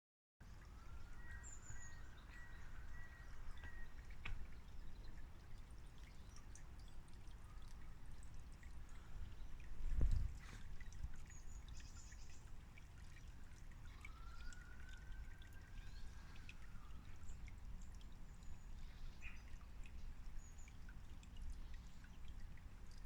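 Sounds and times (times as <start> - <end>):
birds singing and chirping: 0.6 - 7.8.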